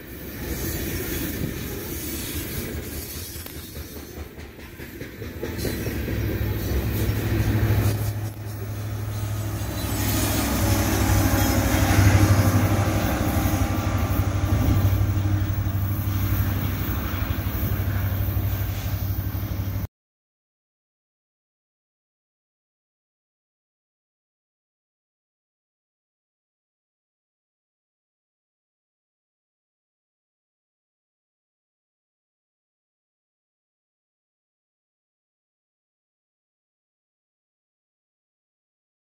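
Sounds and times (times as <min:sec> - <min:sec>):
diesel locomotive engine drone: 0:00.0 - 0:19.9
train wheels clattering on rails: 0:00.4 - 0:19.9.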